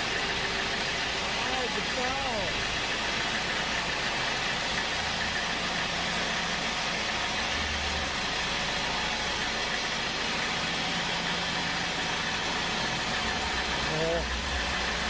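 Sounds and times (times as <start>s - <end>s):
sawmill machinery running: 0.0s - 15.0s.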